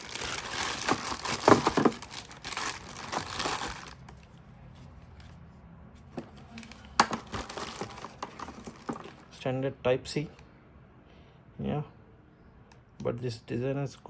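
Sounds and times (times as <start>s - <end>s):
plastic packaging crinkling: 0.0s - 4.4s, 6.2s - 9.3s.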